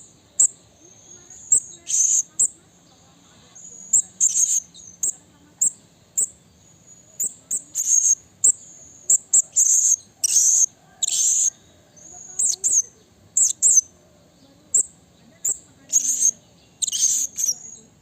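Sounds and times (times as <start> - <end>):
parrot shrill calls: 7.2 - 11.6, 15.9 - 17.8
parrot buzzy calls: 7.2 - 13.9, 14.7 - 17.7.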